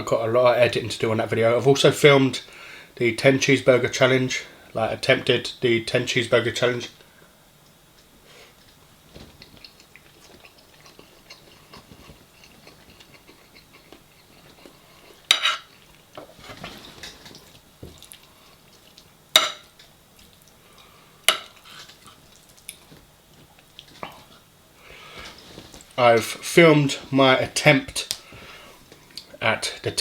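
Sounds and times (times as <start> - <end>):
cutlery clinking on dishes: 15.3 - 15.7, 19.4 - 19.7.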